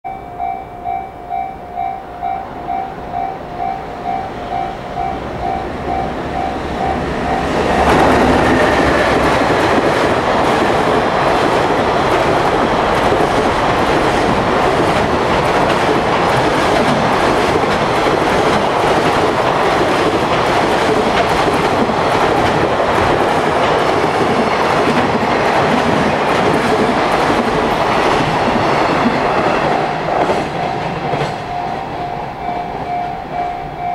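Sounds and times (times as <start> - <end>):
pulsing warning tone: 0.1 - 8.9
train wagons rushing past: 0.3 - 33.9.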